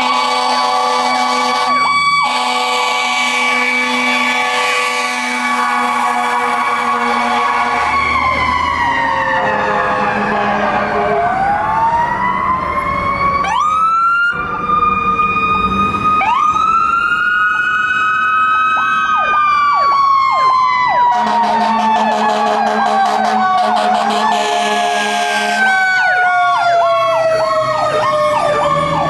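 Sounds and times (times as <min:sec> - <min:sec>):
horn blast: 0:00.0 - 0:08.2, 0:09.3 - 0:11.4, 0:21.1 - 0:25.8
wailing fire sirens: 0:00.0 - 0:29.0.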